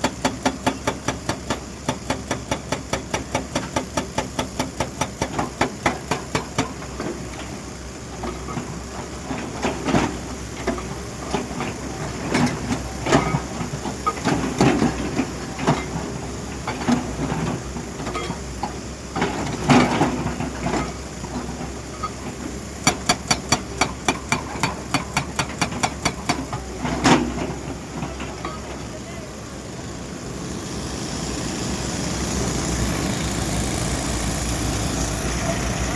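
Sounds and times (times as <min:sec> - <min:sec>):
excavator diesel engine running: 0:00.0 - 0:35.9
hydraulic breaker hammer striking: 0:22.8 - 0:27.6.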